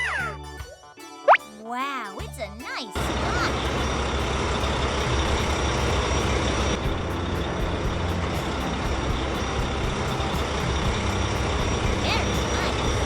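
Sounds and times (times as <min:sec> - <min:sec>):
heavy vehicle engine rumble: 0:03.0 - 0:13.0.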